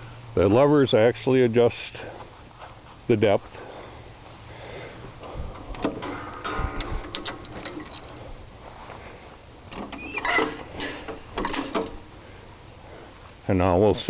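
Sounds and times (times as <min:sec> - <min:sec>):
metal levers clicking and rattling: 0:05.5 - 0:08.2, 0:09.7 - 0:12.0.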